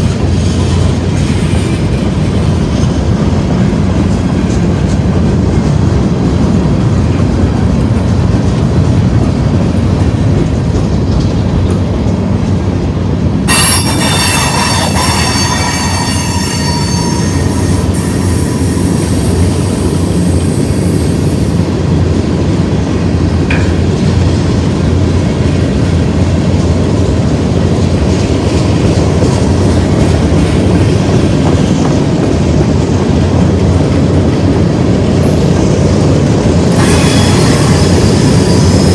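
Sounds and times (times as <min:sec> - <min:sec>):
train wheels rumbling on rail: 0:00.0 - 0:38.9
wheel flanges squealing on rail: 0:13.5 - 0:21.8, 0:36.6 - 0:38.9.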